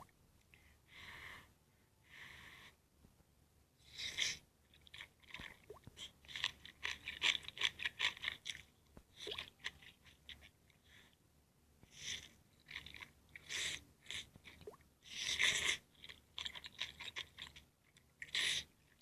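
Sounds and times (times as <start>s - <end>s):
chewing crunchy food: 4.8s - 10.6s, 12.1s - 19.0s.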